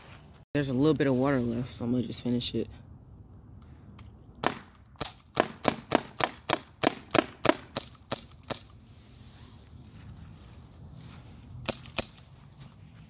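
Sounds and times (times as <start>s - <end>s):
air pistol firing rapid shots: 4.4s - 8.7s.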